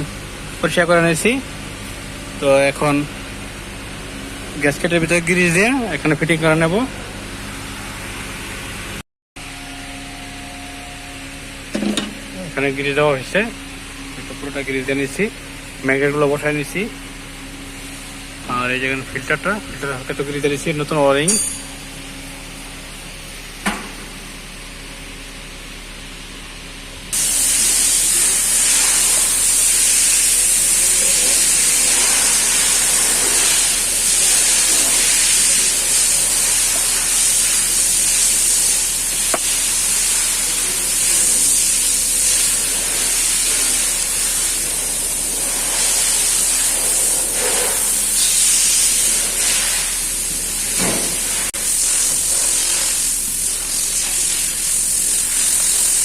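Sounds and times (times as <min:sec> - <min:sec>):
loud steady hissing: 0:27.2 - 0:56.0.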